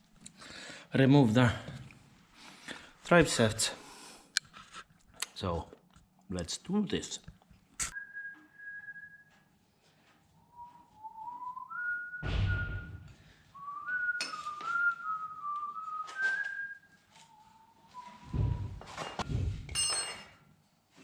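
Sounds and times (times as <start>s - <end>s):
person whistling a tune: 7.9s - 9.5s, 10.4s - 19.0s.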